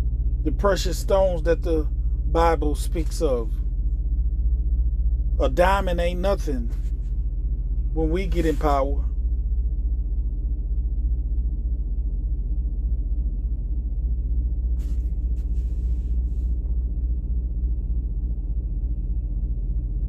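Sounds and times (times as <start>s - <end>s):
low hum: 0.0s - 20.0s
short rustles: 6.6s - 7.2s, 14.8s - 16.6s.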